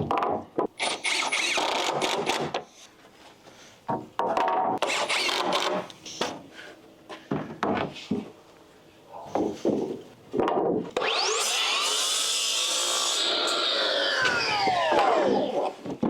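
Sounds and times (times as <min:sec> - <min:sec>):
sawing wood: 0:11.0 - 0:15.7.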